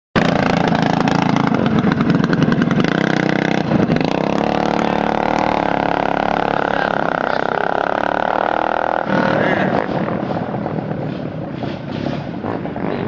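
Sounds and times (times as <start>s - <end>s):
small engine running: 0.2s - 10.5s.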